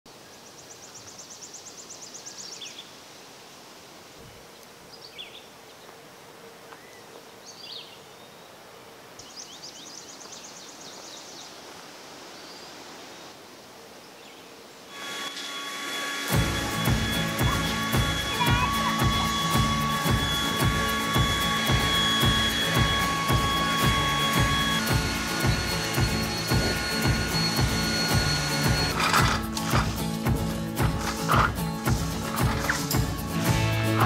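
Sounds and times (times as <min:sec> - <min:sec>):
steady background hiss: 0:00.1 - 0:33.9
bird trilling: 0:16.3 - 0:29.9
music: 0:16.3 - 0:34.0.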